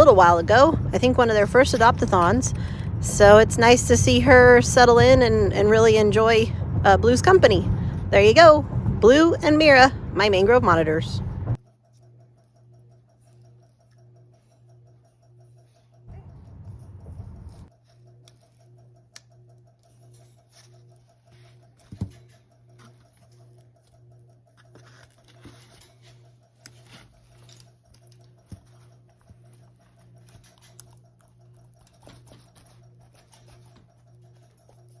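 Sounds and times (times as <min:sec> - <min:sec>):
steady low hum: 0:00.0 - 0:35.0
claws clicking and scratching: 0:11.9 - 0:35.0.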